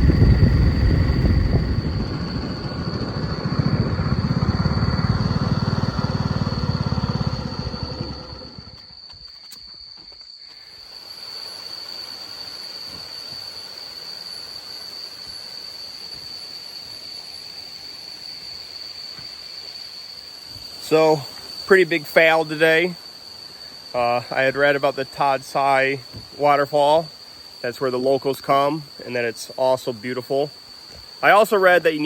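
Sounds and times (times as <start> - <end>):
vehicle rumbling road noise: 0.0 - 8.8
insects droning: 0.0 - 32.0.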